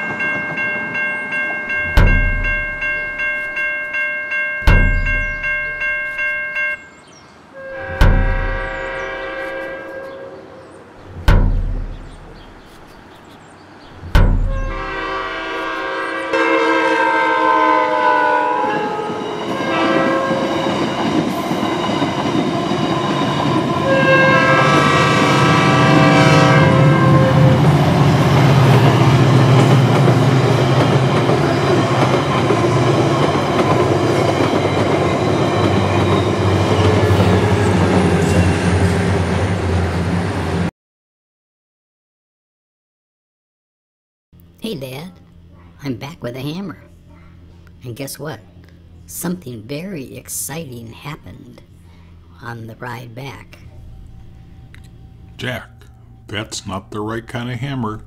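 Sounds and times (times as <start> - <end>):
train cars rumbling and clacking: 0.0 - 40.7, 52.4 - 58.0
sledgehammer strike: 1.9 - 2.8, 4.6 - 5.4, 7.9 - 8.8, 11.1 - 12.4, 14.0 - 15.0
train horn blasts: 7.5 - 10.8, 14.4 - 21.0, 23.6 - 29.3.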